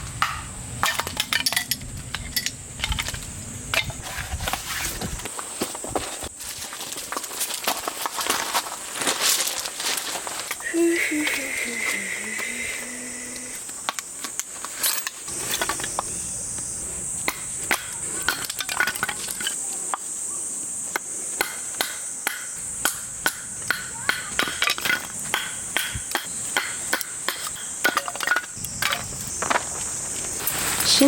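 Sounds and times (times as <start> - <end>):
axe chopping firewood: 17.2 - 19.0, 21.4 - 29.0.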